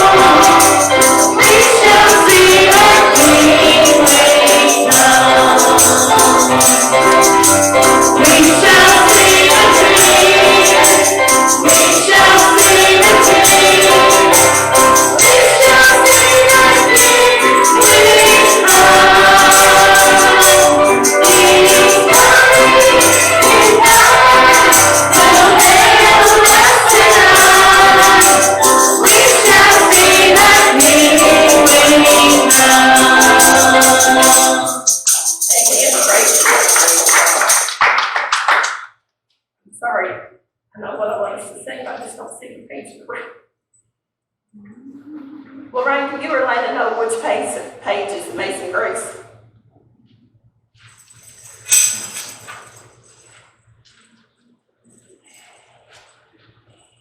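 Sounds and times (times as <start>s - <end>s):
group singing gospel song: 0.0s - 35.0s
tambourine shaking: 0.0s - 38.0s, 50.8s - 54.2s.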